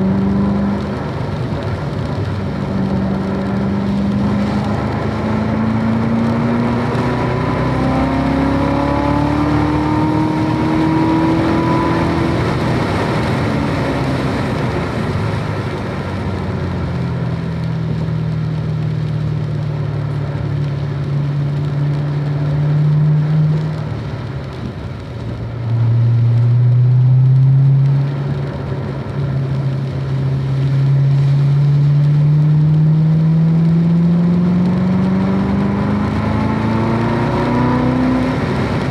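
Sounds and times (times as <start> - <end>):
car engine accelerating hard: 0.0 - 38.9.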